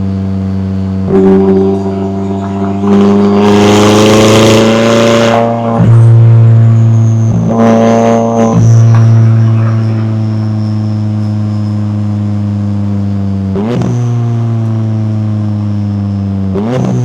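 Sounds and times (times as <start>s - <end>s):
faint high whine: 0.0s - 13.2s
car engine running: 0.0s - 17.0s.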